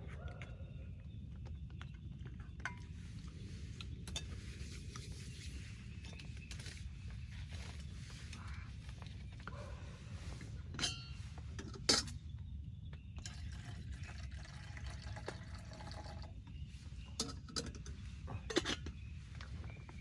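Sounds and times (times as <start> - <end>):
liquid being poured: 13.3 - 16.3.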